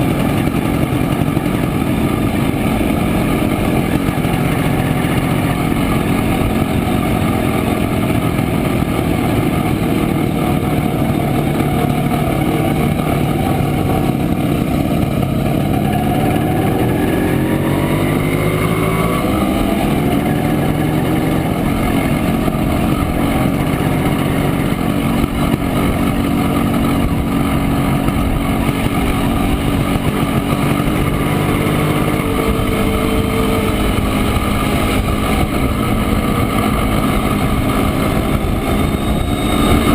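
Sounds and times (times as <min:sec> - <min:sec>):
motorcycle engine running: 0:00.0 - 0:39.9
wind rush: 0:13.5 - 0:39.9.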